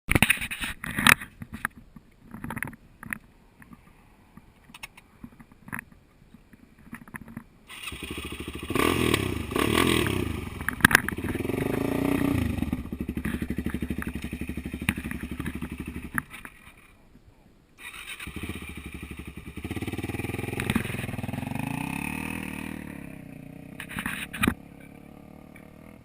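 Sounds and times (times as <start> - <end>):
motorcycle engine revving and idling: 7.7 - 16.8, 17.8 - 26.0.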